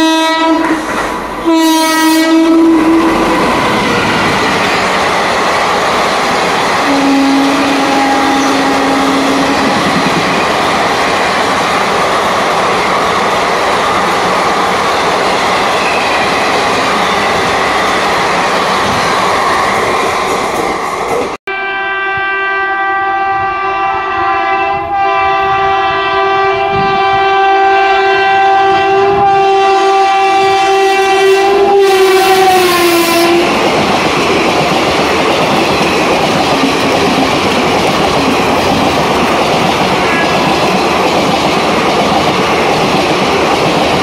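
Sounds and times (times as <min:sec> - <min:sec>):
train horn: 0:00.0 - 0:04.6, 0:06.8 - 0:10.1, 0:21.5 - 0:33.6
train wheel and rail noise: 0:00.0 - 0:44.0.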